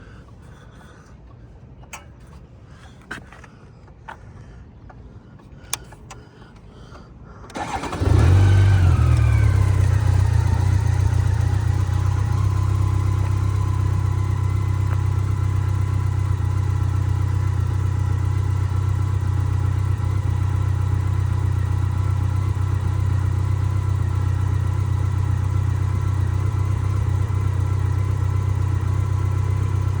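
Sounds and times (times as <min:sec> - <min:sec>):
faint clicks: 0:04.9 - 0:07.7
motorcycle engine starting and idling: 0:07.5 - 0:30.0.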